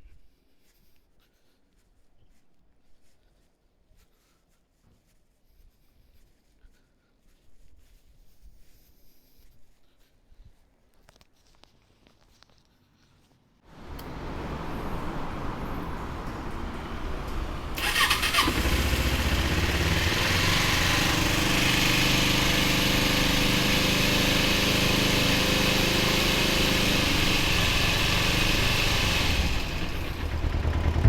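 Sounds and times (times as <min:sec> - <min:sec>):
motorcycle engine starting and idling: 0:13.7 - 0:31.0.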